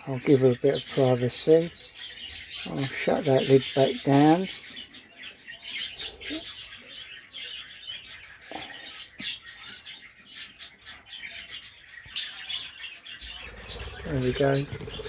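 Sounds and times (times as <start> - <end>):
budgies chirping: 0.0 - 15.0.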